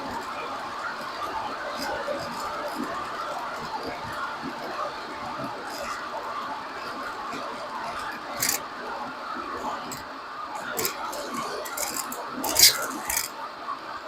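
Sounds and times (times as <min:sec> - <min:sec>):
road and tyre noise: 0:00.0 - 0:14.0
sharp clicks and rattles: 0:07.3 - 0:08.6, 0:09.8 - 0:13.3.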